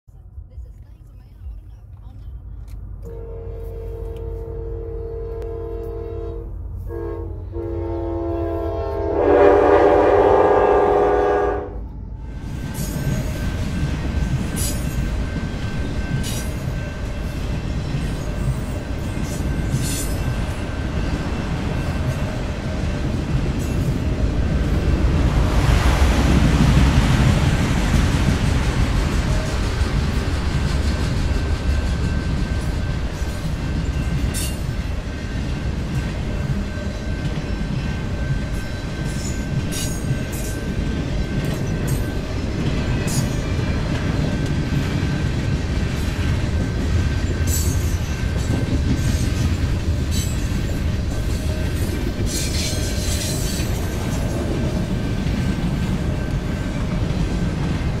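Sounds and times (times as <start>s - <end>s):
freight train rumbling past: 0.1s - 58.0s
wheels clacking over rail joints: 12.4s - 58.0s.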